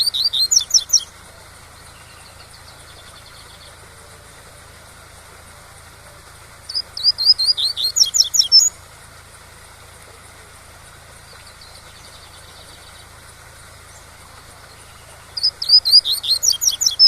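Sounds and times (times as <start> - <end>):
bird singing whistled notes: 0.0 - 3.8, 6.7 - 8.8, 13.8 - 17.0.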